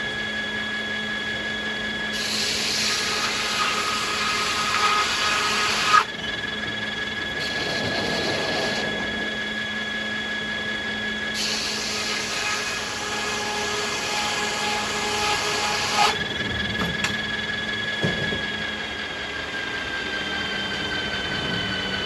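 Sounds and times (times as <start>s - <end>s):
sawmill machinery whining: 0.0s - 22.0s
saw cutting through wood: 2.1s - 6.2s, 7.2s - 9.1s, 11.3s - 22.0s
wooden knocks: 16.5s - 18.8s.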